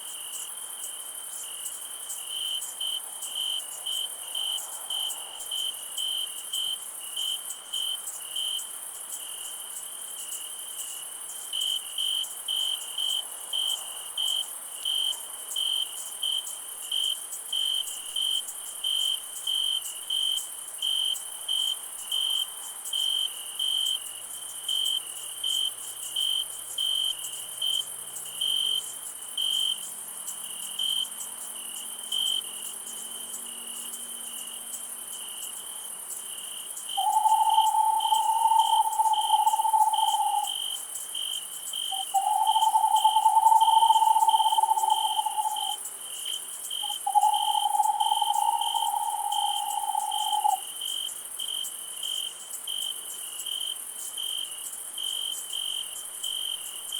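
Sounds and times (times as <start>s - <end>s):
cricket chirping: 0.0s - 56.9s
high-pitched insect drone: 36.9s - 40.8s, 41.9s - 45.9s, 46.8s - 50.7s.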